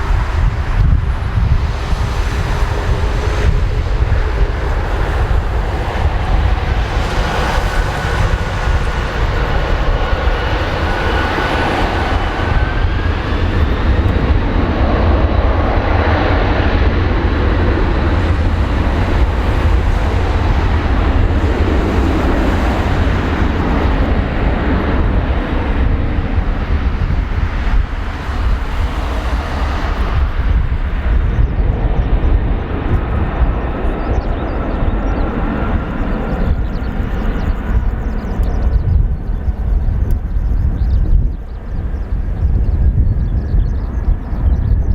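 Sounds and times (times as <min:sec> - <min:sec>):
jet engines roaring: 0:00.0 - 0:44.9.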